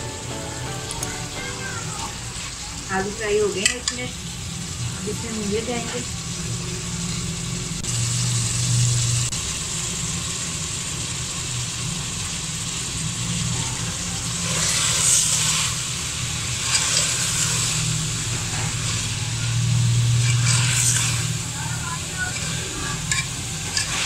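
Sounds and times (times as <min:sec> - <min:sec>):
food sizzling in a pot: 0:00.0 - 0:24.0
ladle stirring and scraping pot: 0:20.2 - 0:21.3, 0:22.3 - 0:24.0.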